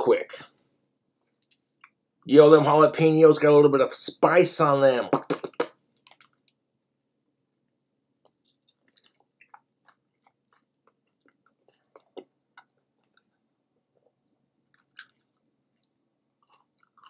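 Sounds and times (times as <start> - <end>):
person chewing with wet smacks: 1.2 - 2.0, 5.3 - 6.6, 8.2 - 17.0.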